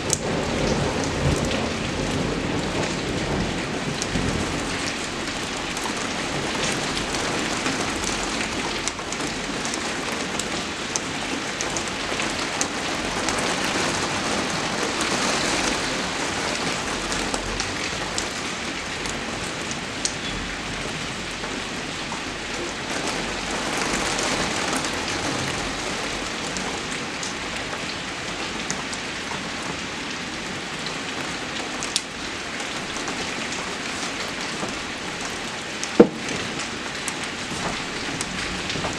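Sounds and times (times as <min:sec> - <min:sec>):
steady rain falling: 0:00.0 - 0:38.9
rain drop ticks: 0:00.1 - 0:12.8, 0:31.8 - 0:38.9.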